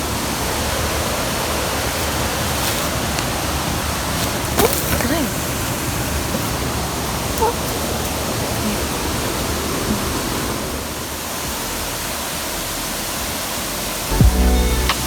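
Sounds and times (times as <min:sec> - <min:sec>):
waterfall rushing: 0:00.0 - 0:15.0
background music with low beat: 0:14.1 - 0:15.0.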